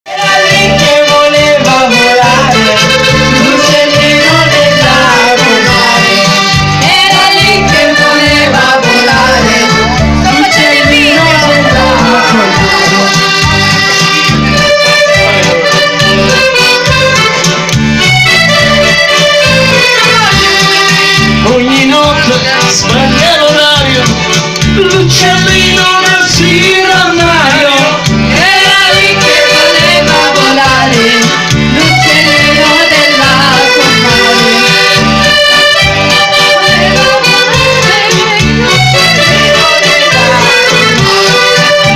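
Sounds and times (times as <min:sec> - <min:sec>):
accordion playing folk tune: 0:00.0 - 0:41.9
person singing: 0:00.1 - 0:16.0, 0:21.4 - 0:35.4, 0:36.1 - 0:41.9
rhythmic bass: 0:00.1 - 0:41.9.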